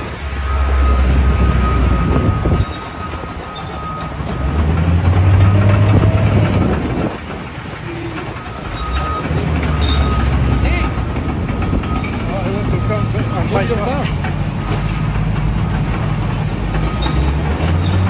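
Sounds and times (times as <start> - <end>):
bulldozer diesel engine rumbling: 0.0 - 18.0.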